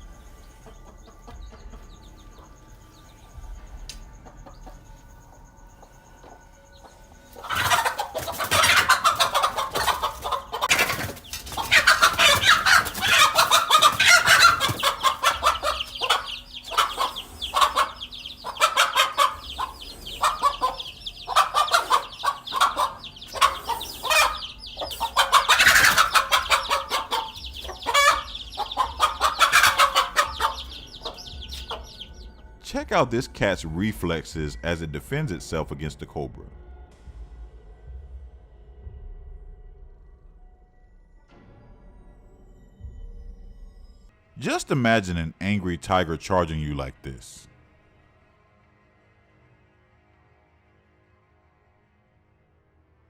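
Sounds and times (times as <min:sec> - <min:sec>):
hen clucking loudly: 0:07.4 - 0:32.2.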